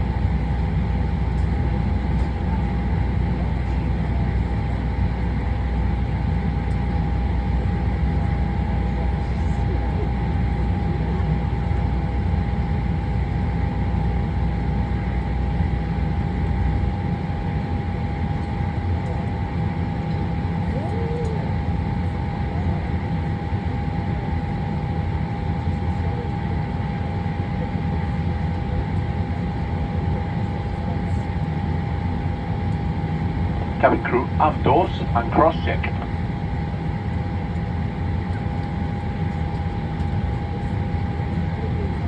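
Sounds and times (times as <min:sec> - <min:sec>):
cabin air conditioning hum: 0:33.6 - 0:36.1.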